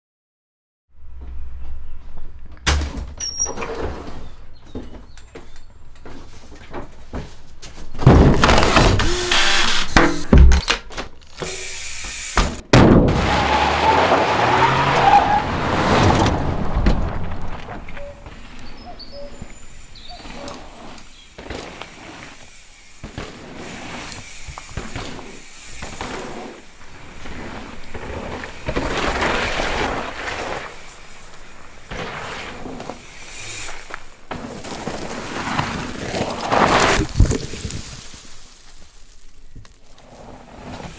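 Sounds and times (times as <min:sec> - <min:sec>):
bike tyres skidding on dirt: 0:03.3 - 0:40.9
freewheeling bike hub buzzing: 0:11.2 - 0:12.6, 0:18.2 - 0:37.8.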